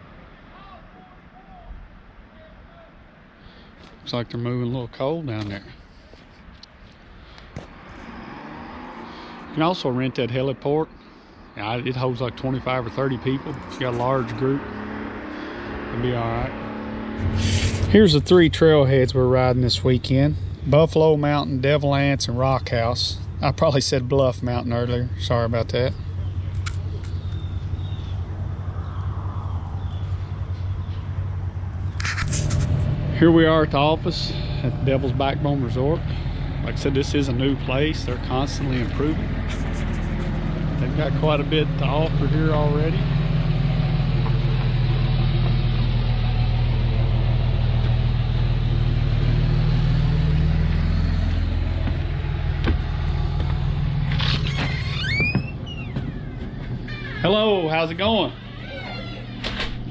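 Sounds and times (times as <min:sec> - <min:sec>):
vehicle engine humming: 0:03.5 - 0:59.9
sharp click: 0:26.5 - 0:27.4.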